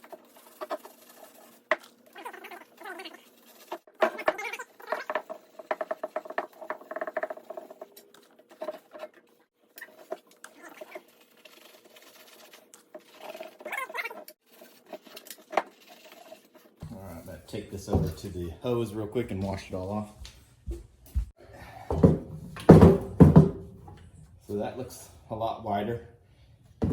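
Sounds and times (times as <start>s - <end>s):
steel wool scrubbing metal tank: 9.9s - 19.4s.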